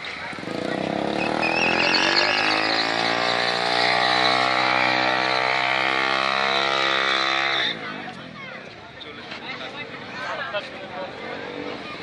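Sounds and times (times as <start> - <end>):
motorcycle engine at high revs: 0.0 - 8.4.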